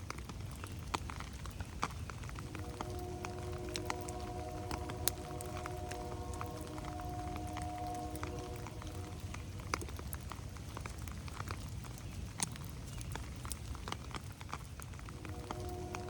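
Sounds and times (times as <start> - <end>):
rain dripping on leaves: 0.0 - 16.0
steady low rumble: 2.2 - 11.8, 15.0 - 16.0.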